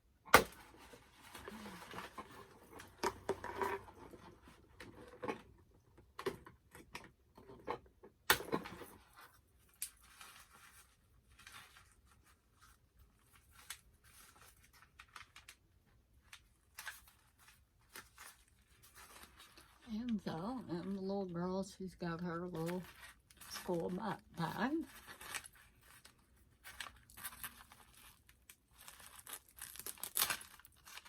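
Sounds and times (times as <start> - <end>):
packaging rustling: 16.2 - 21.0, 22.6 - 31.0.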